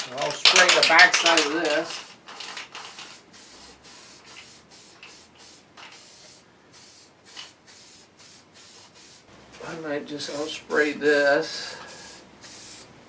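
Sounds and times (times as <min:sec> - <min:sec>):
aerosol can spraying in hissing bursts: 0:01.2 - 0:09.3, 0:11.7 - 0:12.9.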